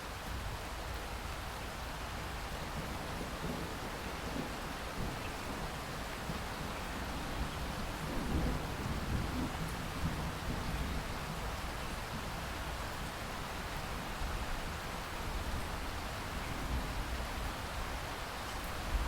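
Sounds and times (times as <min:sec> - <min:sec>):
steady rain falling: 0:00.0 - 0:19.0
thunder rumble: 0:02.8 - 0:11.5.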